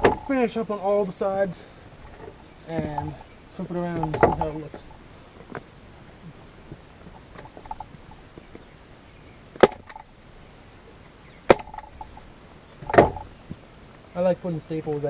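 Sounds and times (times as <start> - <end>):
handling noises and ticks: 0.0 - 15.0.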